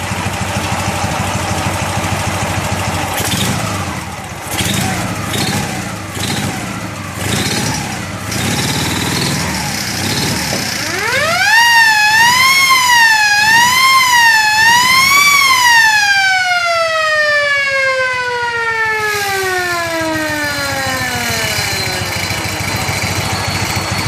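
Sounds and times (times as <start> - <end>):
motorcycle engine running: 0.0 - 15.6, 19.0 - 24.0
siren wailing: 8.4 - 24.0.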